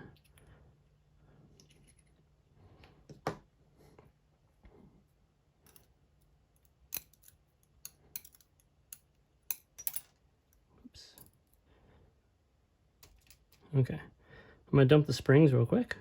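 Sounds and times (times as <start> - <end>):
metallic clicks of lock parts: 6.6 - 10.6, 13.0 - 13.6.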